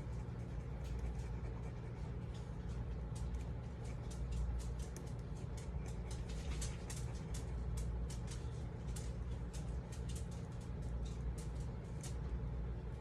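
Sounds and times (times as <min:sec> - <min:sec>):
low hum: 0:00.0 - 0:13.0
pen scratching on paper: 0:00.1 - 0:02.2.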